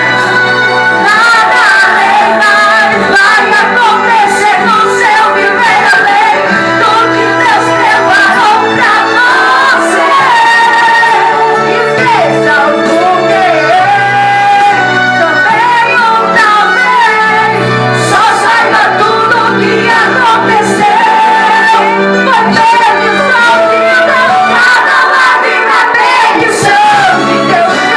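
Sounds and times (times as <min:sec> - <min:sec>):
worship music with singing: 0:00.0 - 0:27.9.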